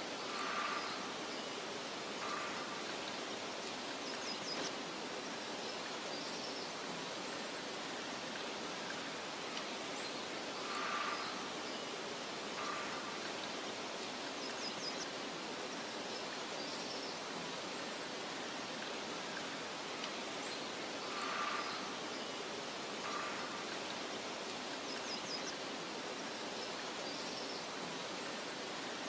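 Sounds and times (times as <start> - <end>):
wind rustling through grass: 0.0 - 29.0
faint bird chirps: 18.8 - 24.1.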